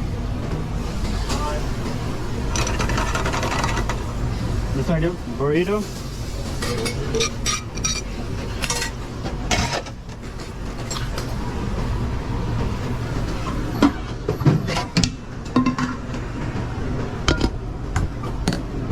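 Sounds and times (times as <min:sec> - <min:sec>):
ventilation hood drone: 0:00.0 - 0:18.9
pans and utensils clinking: 0:06.6 - 0:11.2, 0:13.4 - 0:16.1.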